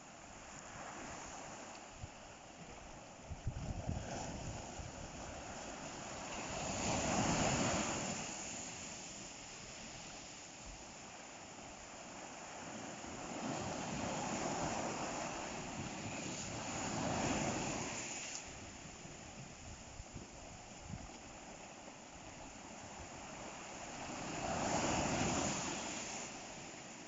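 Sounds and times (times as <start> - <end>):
ocean surf breaking: 3.7 - 10.5, 12.4 - 19.0, 23.0 - 27.0.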